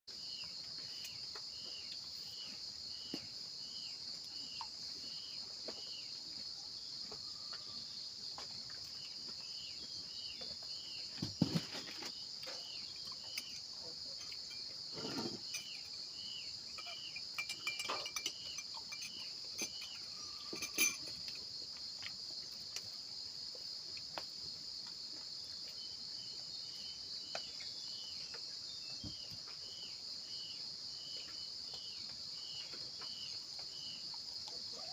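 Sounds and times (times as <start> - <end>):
insect chirping call: 0.1 - 34.9
insect chorus drone: 0.1 - 34.9
knocks and rustles: 10.4 - 13.6.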